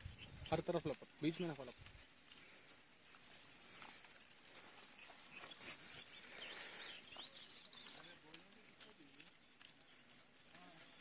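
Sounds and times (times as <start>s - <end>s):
outdoor ambience: 0.0s - 11.0s
faint bird calls: 2.4s - 8.2s.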